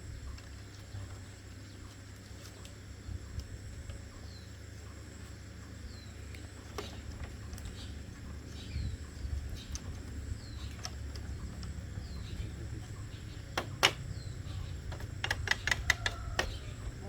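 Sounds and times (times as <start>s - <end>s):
low steady rumble: 0.0s - 17.0s
quick run of clicks: 14.9s - 16.6s.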